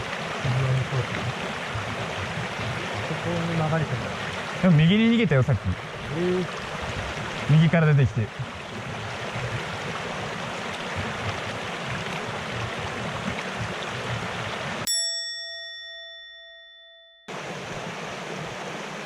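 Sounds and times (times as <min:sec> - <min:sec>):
mountain stream rushing: 0:00.0 - 0:14.9, 0:17.3 - 0:19.0
bell-like ding: 0:14.9 - 0:17.3.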